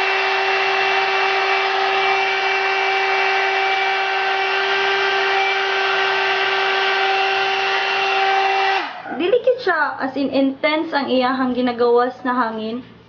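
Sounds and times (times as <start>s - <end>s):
hair dryer brush motor whine: 0.0s - 9.2s.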